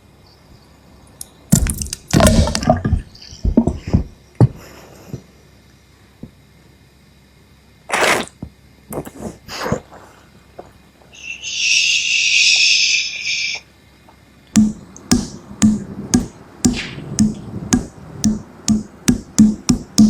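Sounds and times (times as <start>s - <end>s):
loud hiss: 11.1s - 13.8s
music with thumping beat: 14.6s - 20.0s.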